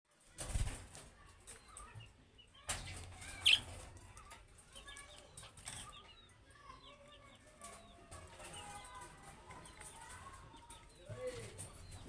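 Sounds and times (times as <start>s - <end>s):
budgerigars chirping: 3.4s - 3.6s.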